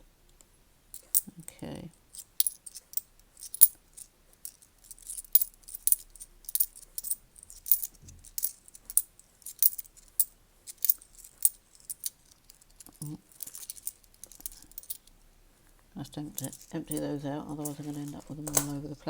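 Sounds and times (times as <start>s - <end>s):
coins clinking: 2.1s - 15.1s, 16.3s - 18.8s.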